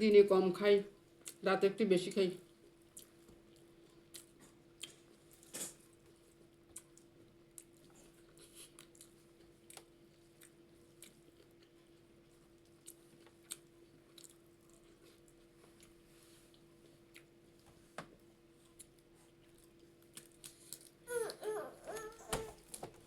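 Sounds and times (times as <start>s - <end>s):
person chewing: 2.9s - 17.6s.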